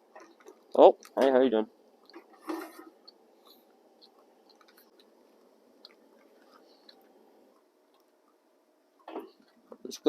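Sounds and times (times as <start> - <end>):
person chewing food: 1.8 - 8.4.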